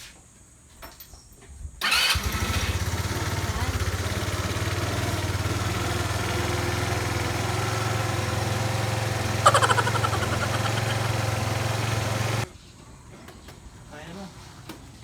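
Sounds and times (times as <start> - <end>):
scooter engine idling: 1.8 - 12.5.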